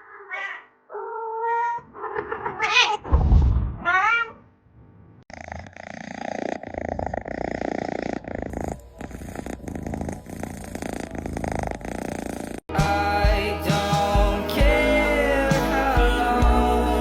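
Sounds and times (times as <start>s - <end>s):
cat purring: 4.8s - 12.7s.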